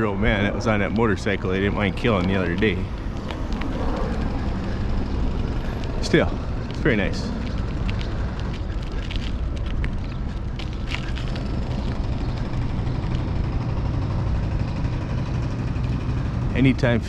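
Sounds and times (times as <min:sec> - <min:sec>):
rumbling wind and road noise: 0:00.0 - 0:17.0
faint clicks: 0:01.8 - 0:13.6.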